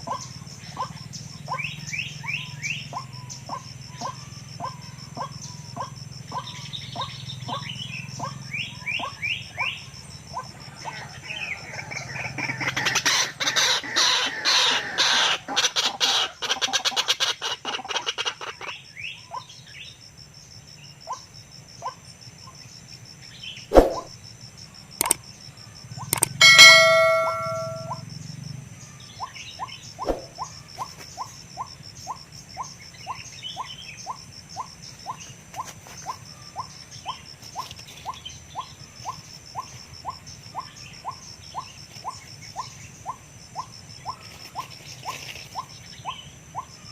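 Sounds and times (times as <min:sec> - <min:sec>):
bird croaking calls: 0:10.4 - 0:19.5, 0:26.1 - 0:28.0
sharp clicks: 0:26.2 - 0:27.9.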